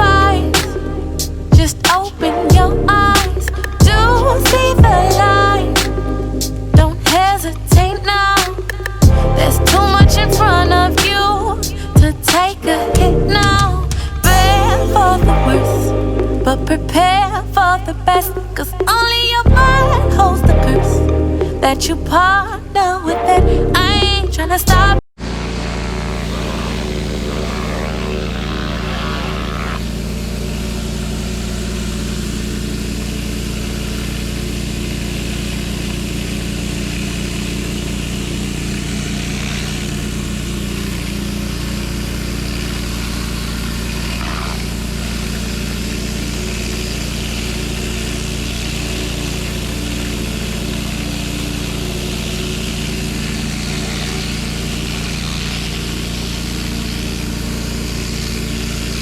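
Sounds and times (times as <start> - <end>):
even hiss: 0.0 - 14.8
pressure washer engine running: 0.0 - 22.4, 25.2 - 59.0.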